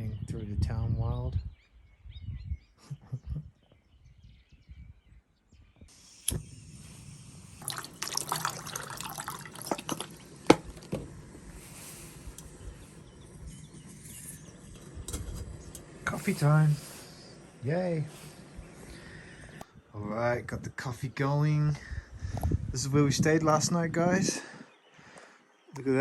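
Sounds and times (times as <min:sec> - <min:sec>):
water pouring into a pot: 0:05.9 - 0:14.8.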